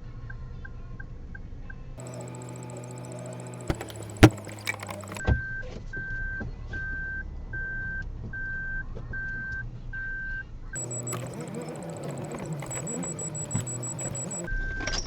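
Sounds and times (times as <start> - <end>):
car warning beeps: 2.0 - 5.2, 10.8 - 14.5
sharp thumps: 2.0 - 5.2, 10.8 - 14.5.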